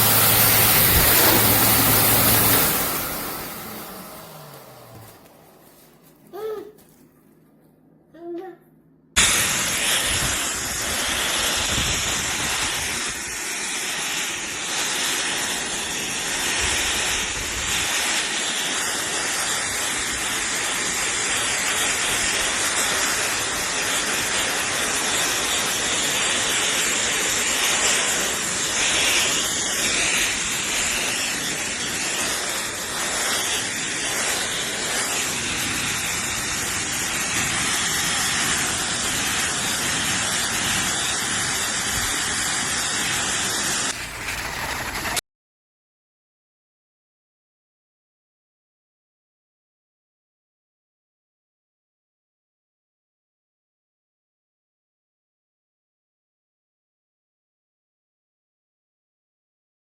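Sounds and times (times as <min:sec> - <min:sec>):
pet dryer blowing air: 0:00.0 - 0:06.5, 0:09.2 - 0:45.2.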